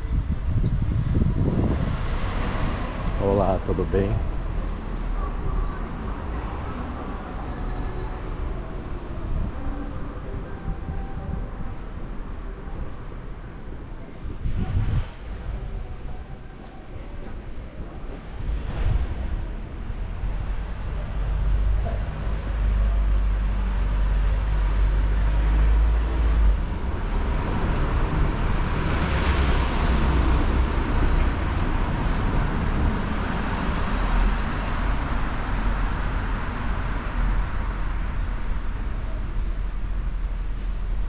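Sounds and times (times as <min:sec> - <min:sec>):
low traffic rumble: 0:00.0 - 0:41.0
vehicle passing close: 0:18.3 - 0:38.2.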